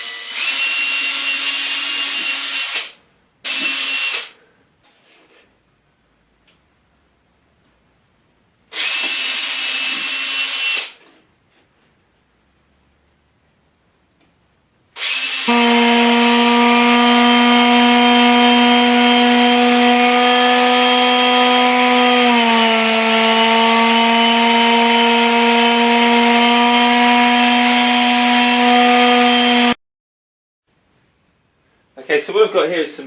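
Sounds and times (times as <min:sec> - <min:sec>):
electric drill whining: 0:00.0 - 0:04.4, 0:08.7 - 0:11.0, 0:15.0 - 0:29.8.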